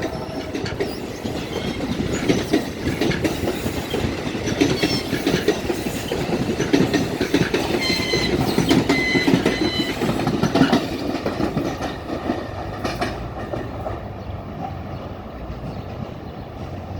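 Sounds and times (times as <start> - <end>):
wheels clacking over rail joints: 0.0 - 16.9
high wheel squeals: 7.7 - 10.8.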